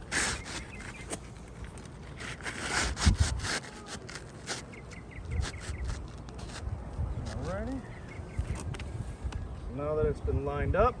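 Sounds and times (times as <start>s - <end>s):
roof shingle scraping: 0.0s - 6.7s.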